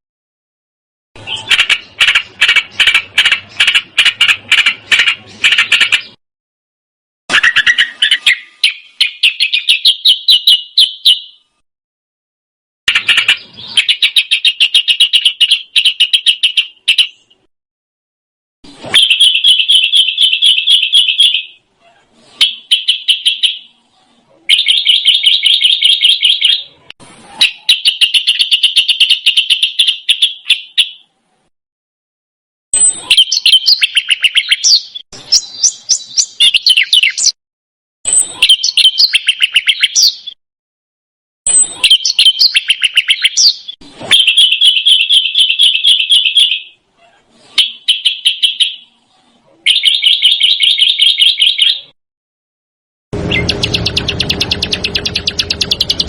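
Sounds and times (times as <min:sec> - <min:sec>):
songbird warbling: 0:53.3 - 0:56.0.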